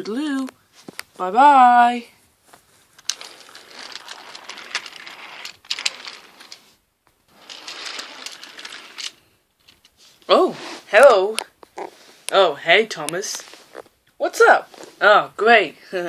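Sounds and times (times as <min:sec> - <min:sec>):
toy train rattling on track: 0:03.0 - 0:06.7, 0:07.3 - 0:09.2.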